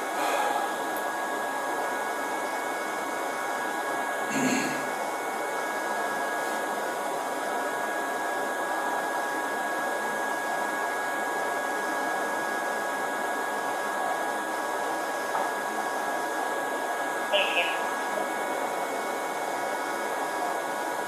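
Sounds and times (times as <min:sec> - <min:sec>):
air blower hissing: 0:00.0 - 0:01.3
faint high whine: 0:13.8 - 0:21.0.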